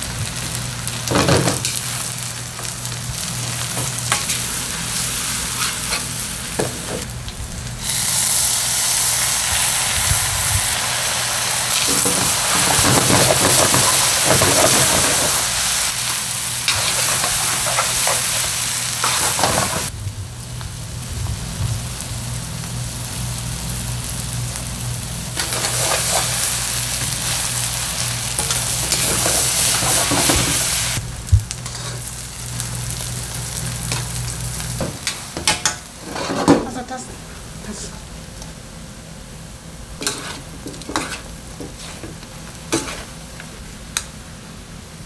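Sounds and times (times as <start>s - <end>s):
fish cakes sizzling in pan: 0.0s - 35.4s
steady low hum: 19.9s - 25.6s.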